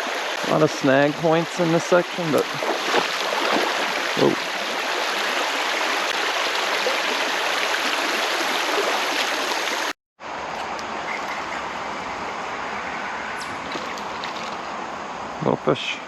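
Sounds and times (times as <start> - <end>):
creek water rushing: 0.0 - 9.9.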